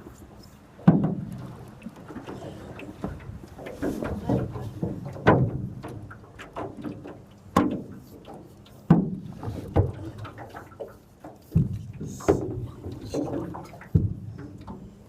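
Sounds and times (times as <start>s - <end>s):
knocks against boat hull: 0.8s - 1.5s, 3.8s - 7.9s, 8.8s - 10.1s, 11.4s - 12.6s, 13.9s - 14.8s.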